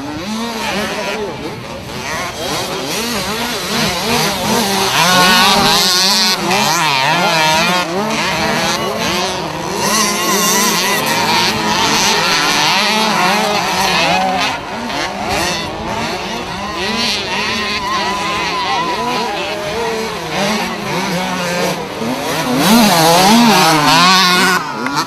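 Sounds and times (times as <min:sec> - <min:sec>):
two-stroke motorbikes revving: 0:00.0 - 0:25.0.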